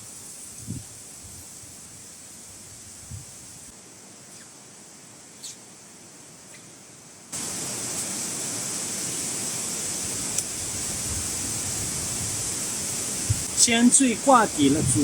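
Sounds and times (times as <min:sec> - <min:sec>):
stream water rushing: 0:07.3 - 0:15.0.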